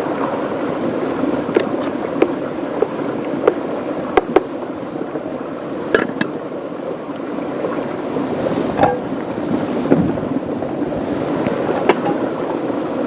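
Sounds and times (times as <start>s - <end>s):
thin high tone: 0.0s - 13.0s.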